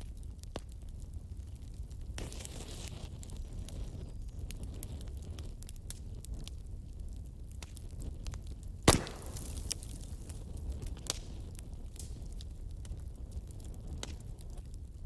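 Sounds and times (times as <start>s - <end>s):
fire crackling: 0.0s - 15.0s
fireplace fire roaring: 0.0s - 15.0s
loud fire pop: 8.8s - 10.4s.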